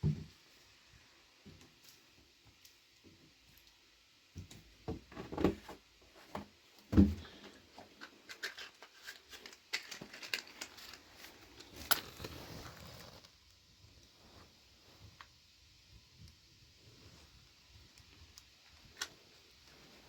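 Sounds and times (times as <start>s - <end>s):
rustling and crinkling: 4.4s - 15.4s, 16.0s - 20.0s.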